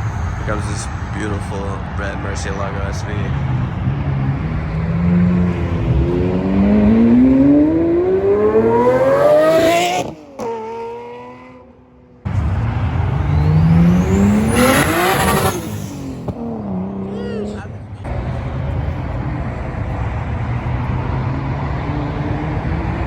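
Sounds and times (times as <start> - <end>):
sports car engine accelerating: 0.1 - 23.0.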